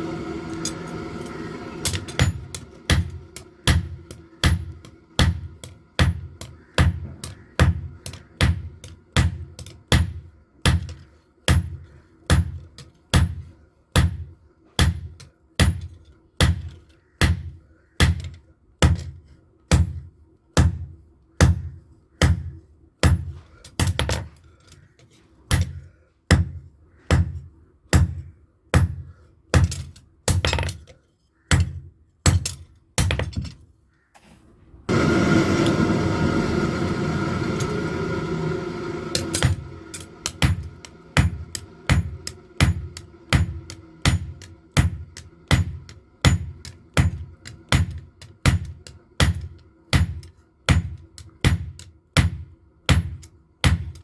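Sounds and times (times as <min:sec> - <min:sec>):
hammer striking metal on anvil: 0:00.6 - 0:12.6, 0:39.0 - 0:54.0.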